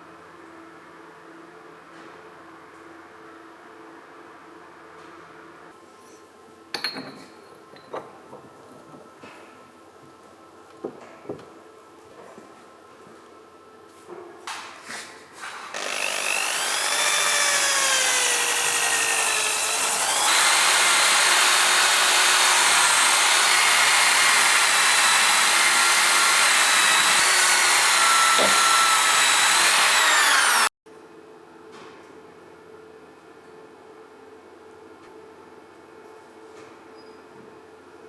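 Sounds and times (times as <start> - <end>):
small power tool whining and grinding: 15.4 - 30.7.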